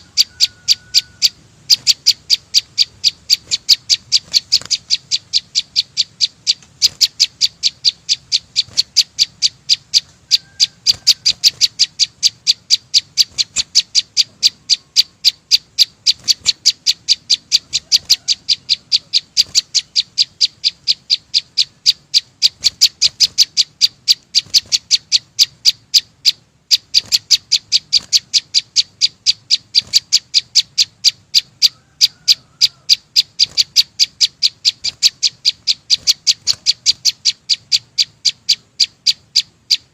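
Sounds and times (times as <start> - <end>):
songbird high chip notes: 0.0 - 39.9.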